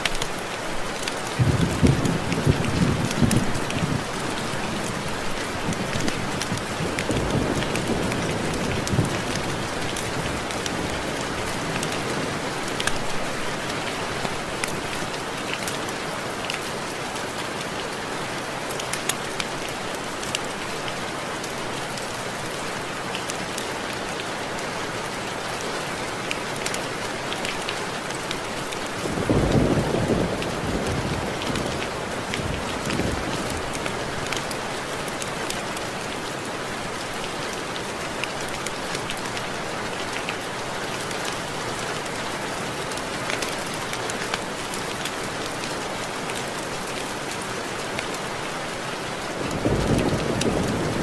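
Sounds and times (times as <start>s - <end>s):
rain on window glass: 25.8s - 51.0s
thunder rumbling: 29.0s - 34.0s, 49.4s - 51.0s.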